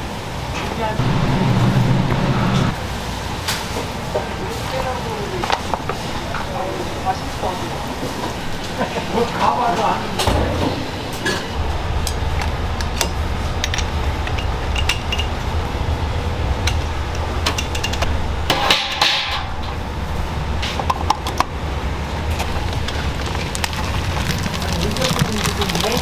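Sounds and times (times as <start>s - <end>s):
steady low hum: 0.0s - 26.0s
metal utensils and dishes clinking: 9.8s - 15.6s, 16.7s - 19.8s.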